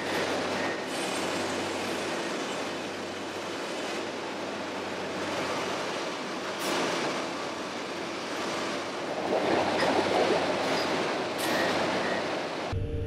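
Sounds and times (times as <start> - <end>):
heavy machinery engine drone: 11.4 - 13.0.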